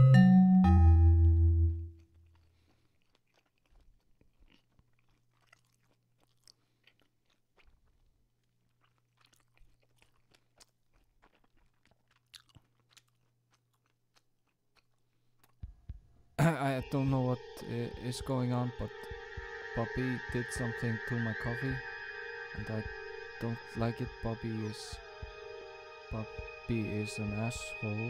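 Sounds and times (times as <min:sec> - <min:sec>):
short music chime: 0:00.0 - 0:01.9, 0:16.5 - 0:28.0
person chewing: 0:01.6 - 0:16.2
wet mouth clicks and smacks: 0:02.1 - 0:15.8.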